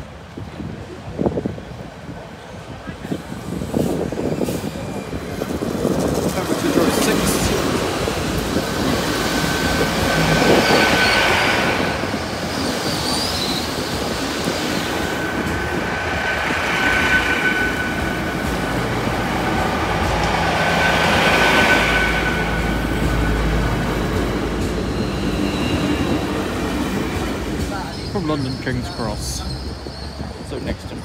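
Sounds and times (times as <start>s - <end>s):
train wheels squealing on rails: 2.5s - 31.0s
low drone: 14.3s - 26.5s.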